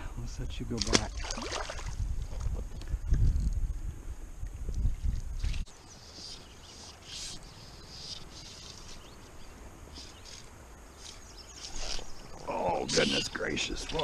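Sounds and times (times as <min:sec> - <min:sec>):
birds chirping faintly: 0:04.4 - 0:14.0.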